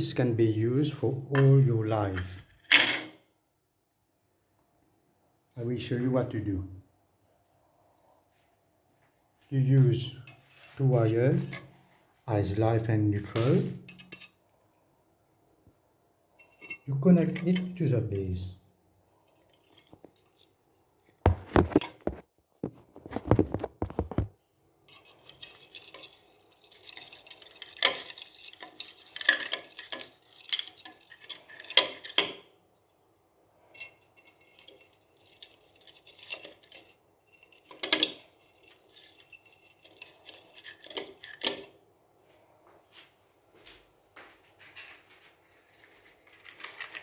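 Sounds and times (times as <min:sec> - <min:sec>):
metal parts clinking and rattling: 0:02.2 - 0:03.2, 0:10.2 - 0:11.8, 0:13.2 - 0:14.4, 0:16.4 - 0:17.8, 0:19.1 - 0:24.3, 0:24.9 - 0:32.6, 0:33.6 - 0:41.8, 0:46.0 - 0:47.0
handling noises: 0:19.0 - 0:32.6.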